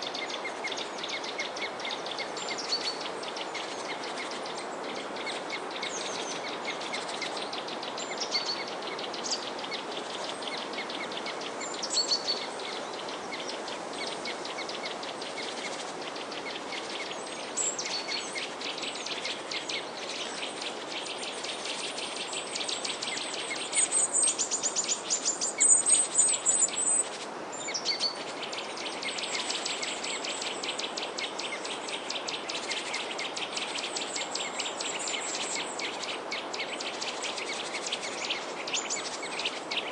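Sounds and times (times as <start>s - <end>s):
background hiss: 0.0s - 39.9s
songbirds chirping and trilling: 0.0s - 39.9s.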